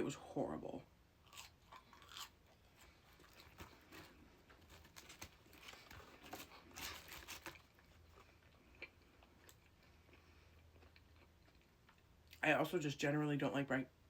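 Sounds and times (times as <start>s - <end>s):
faint chewing: 1.2s - 12.4s
soft crunches: 1.3s - 11.6s.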